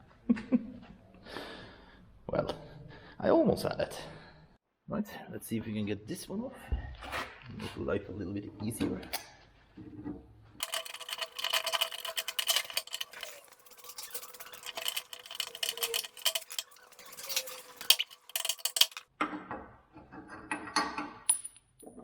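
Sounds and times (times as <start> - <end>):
metallic clicking of hand tools: 10.6 - 19.0.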